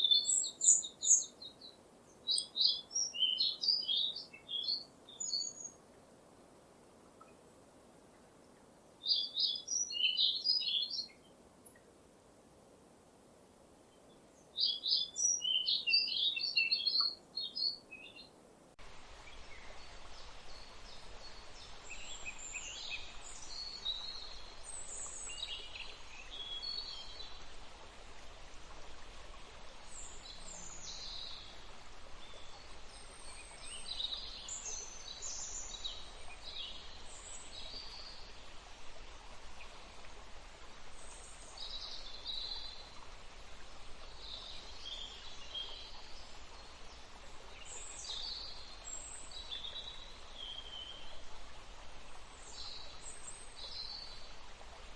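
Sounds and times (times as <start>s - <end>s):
birds singing: 0.0s - 5.8s, 9.0s - 11.8s, 14.4s - 18.3s
songbird chirping: 0.0s - 12.0s, 13.6s - 27.4s, 44.0s - 51.3s
steady background hiss: 0.0s - 54.9s.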